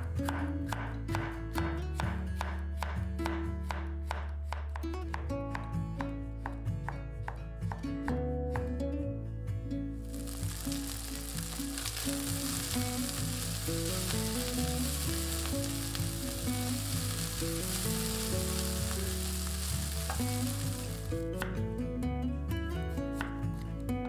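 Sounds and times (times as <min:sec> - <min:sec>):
soft background music: 0:00.0 - 0:24.0
chicken sizzling in a pan: 0:10.0 - 0:21.2
spatula stirring: 0:10.2 - 0:21.2.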